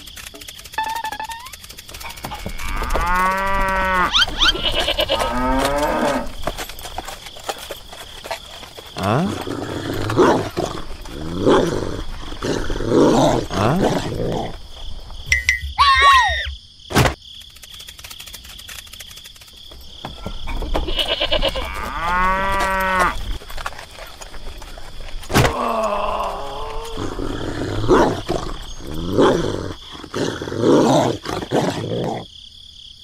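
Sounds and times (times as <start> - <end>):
farm animal calls: 0.7 - 6.3, 20.4 - 23.3
cow mooing: 2.2 - 6.3, 21.0 - 23.2.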